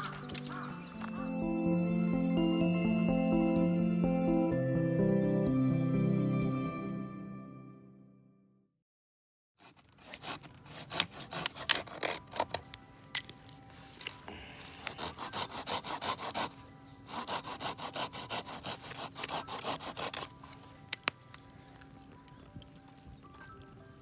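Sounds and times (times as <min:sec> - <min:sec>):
hand saw cutting wood: 0:09.6 - 0:12.6, 0:14.6 - 0:20.6.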